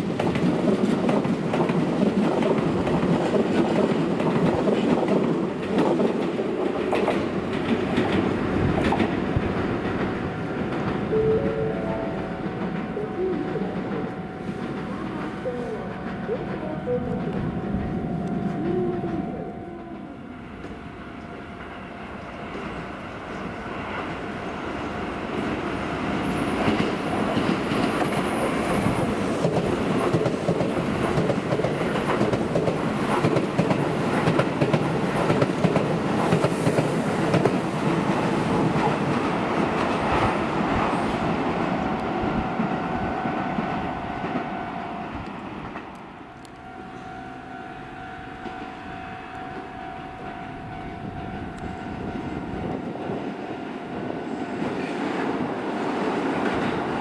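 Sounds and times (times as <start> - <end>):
train wheels clacking over rail joints: 0.0 - 11.1, 26.2 - 40.4
steady pitched tone: 9.3 - 22.3, 46.0 - 54.6.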